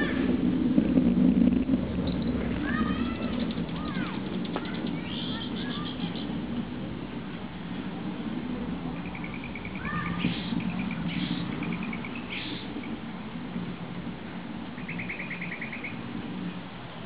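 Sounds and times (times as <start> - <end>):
steady low hum: 0.0 - 17.0
small birds chirping: 2.0 - 6.4, 8.9 - 13.1, 14.7 - 16.0.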